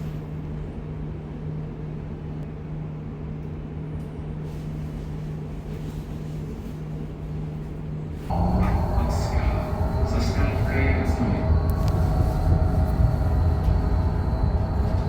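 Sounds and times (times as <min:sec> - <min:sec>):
vehicle low rumble: 0:08.3 - 0:15.0.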